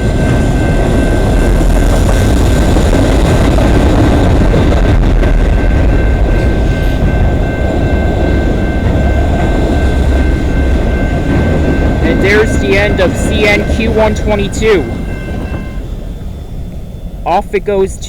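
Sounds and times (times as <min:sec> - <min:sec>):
freight train cars rumbling: 0:00.0 - 0:18.0
high-pitched tones: 0:04.6 - 0:18.0.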